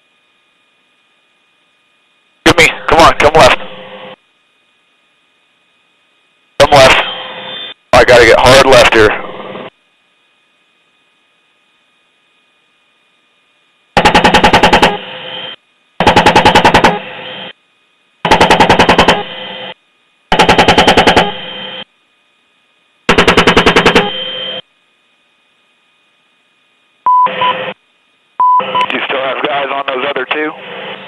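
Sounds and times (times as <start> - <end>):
radio tone: 2.5 - 3.8, 6.6 - 9.6, 28.4 - 31.0
chain gun firing bursts: 16.0 - 16.9.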